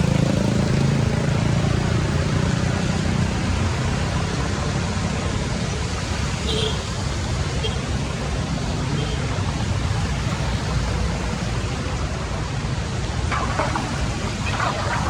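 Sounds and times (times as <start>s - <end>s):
water splashes: 13.2s - 15.0s
floodwater rushing into drain: 13.3s - 15.0s.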